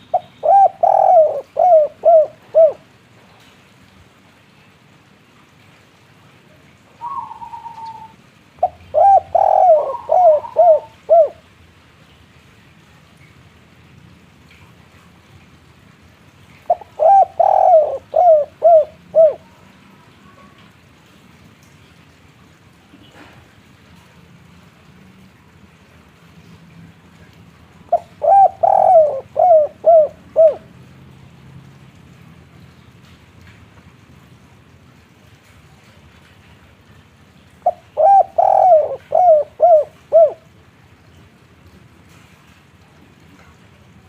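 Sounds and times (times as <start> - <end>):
faint background hiss: 0.0 - 44.0
dove cooing: 0.1 - 2.8, 7.0 - 11.5, 16.7 - 19.6, 27.9 - 30.7, 37.6 - 40.5.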